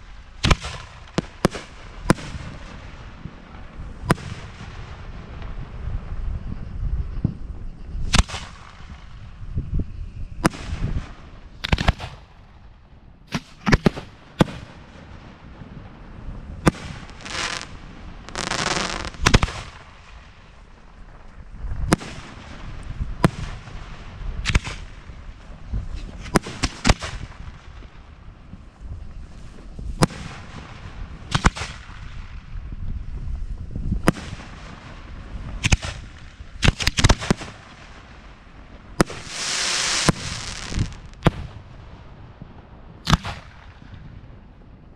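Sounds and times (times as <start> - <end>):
fireworks rushing and crackling: 0.0 - 44.9
fireworks bangs: 13.3 - 28.0, 33.8 - 44.6.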